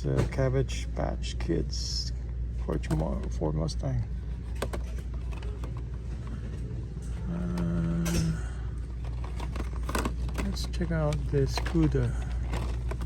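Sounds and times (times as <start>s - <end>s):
low background hum: 0.0s - 13.0s
steady low drone: 0.0s - 13.0s
toy cars clicking and rattling: 9.0s - 13.0s.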